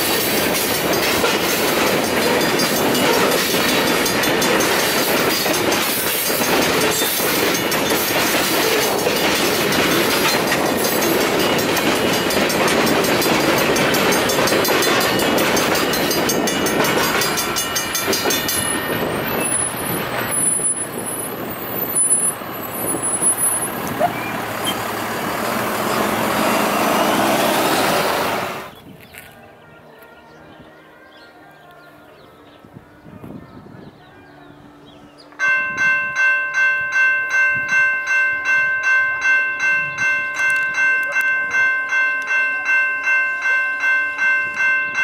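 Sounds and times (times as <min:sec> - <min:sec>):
train wheels rolling on rail: 0:00.0 - 0:29.3.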